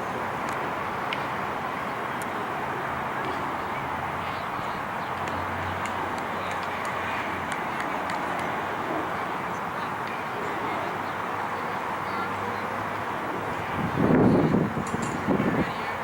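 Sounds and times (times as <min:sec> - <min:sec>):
indistinct distant voices: 0:00.0 - 0:16.0.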